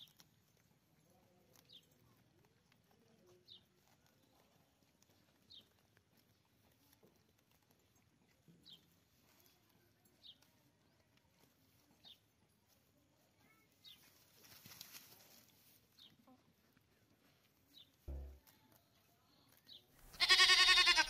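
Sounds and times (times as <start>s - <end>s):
brief rustle: 13.9s - 15.8s.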